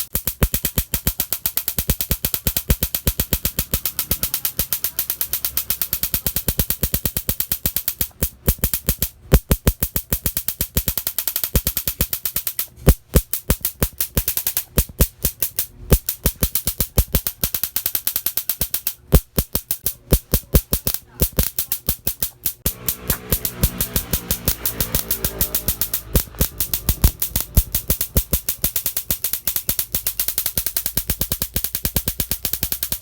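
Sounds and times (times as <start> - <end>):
motorcycle engine puttering: 19.8 - 29.7.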